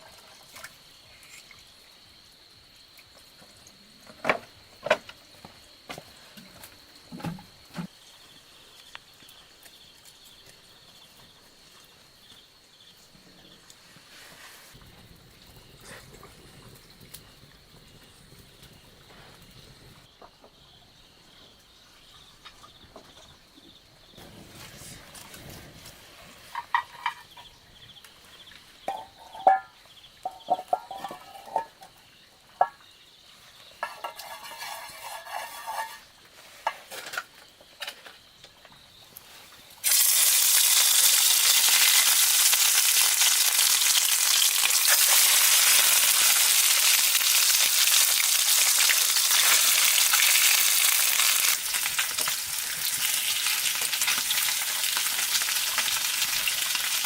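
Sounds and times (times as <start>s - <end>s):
food sizzling in hot oil: 33.8s - 36.1s, 39.8s - 57.0s.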